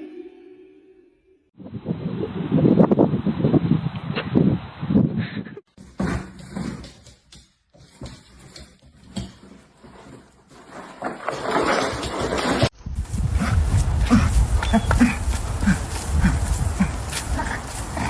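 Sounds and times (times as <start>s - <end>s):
dog making rough noisy sounds: 13.3s - 18.0s.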